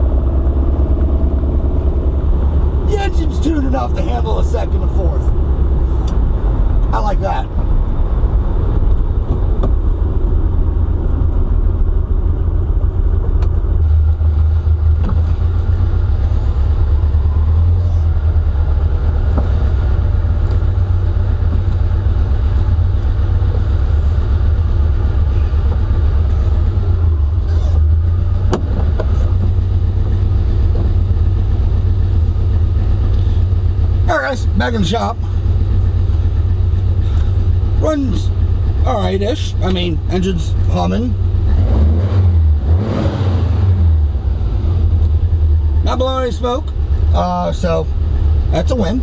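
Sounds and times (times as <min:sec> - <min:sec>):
car engine low rumble from cabin: 0:00.0 - 0:49.0.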